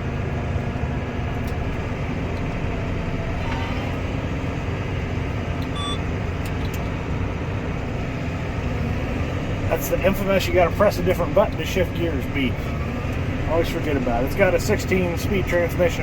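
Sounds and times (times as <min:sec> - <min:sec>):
tractor engine running: 0:00.0 - 0:16.0
short electronic beep: 0:05.7 - 0:06.0.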